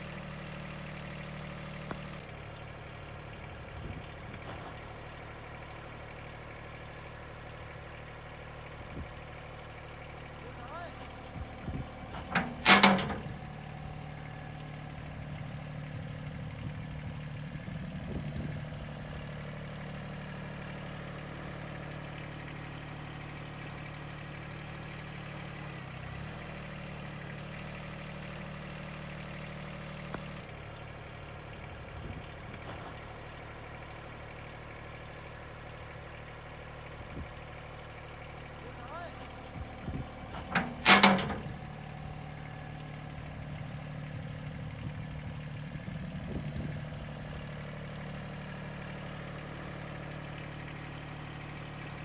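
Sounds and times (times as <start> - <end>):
diesel tractor engine idling: 0.0 - 52.0.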